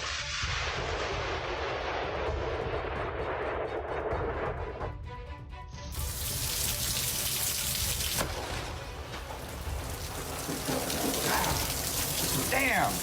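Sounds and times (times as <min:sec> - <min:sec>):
rushing hiss of pouring water: 0:05.9 - 0:13.0.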